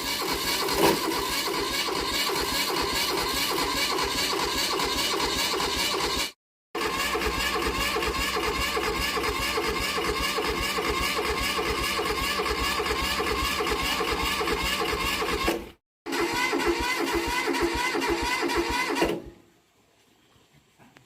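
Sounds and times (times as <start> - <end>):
tractor engine running: 0.0 - 6.2, 6.8 - 15.5.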